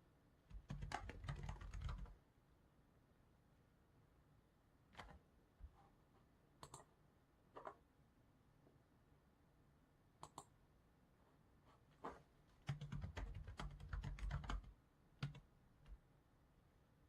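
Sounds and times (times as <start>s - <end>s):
typing on computer keyboard: 0.5s - 2.1s, 5.0s - 5.2s, 6.6s - 6.9s, 12.6s - 15.5s.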